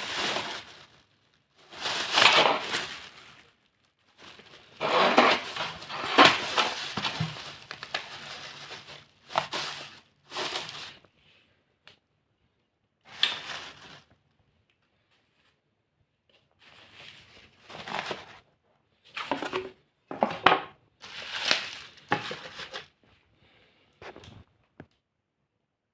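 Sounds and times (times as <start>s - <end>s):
rustling and clattering: 4.2s - 9.6s.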